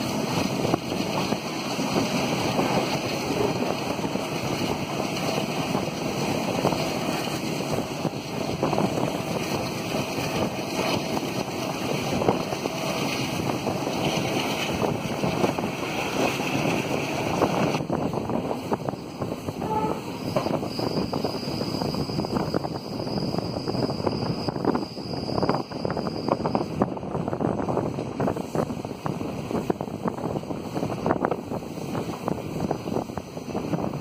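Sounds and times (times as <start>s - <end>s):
train wheel and rail noise: 0.0s - 34.0s
wind buffeting microphone: 0.0s - 34.0s.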